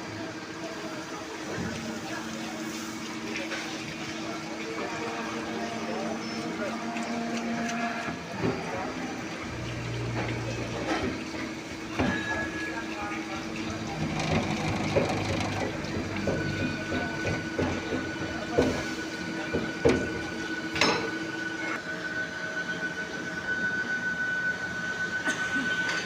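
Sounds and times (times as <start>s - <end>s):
machine hum: 4.7s - 21.8s.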